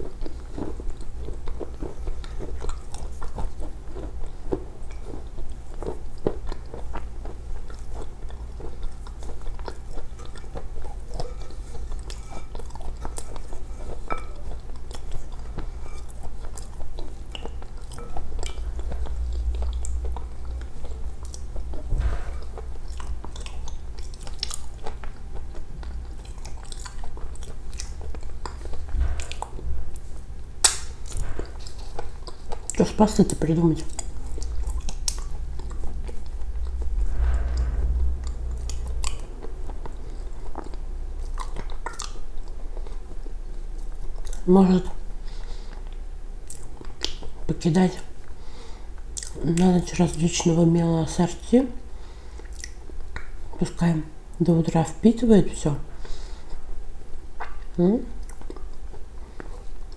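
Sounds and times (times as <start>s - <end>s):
person chewing with crunches: 0.0s - 36.4s, 49.2s - 49.7s, 57.4s - 59.9s.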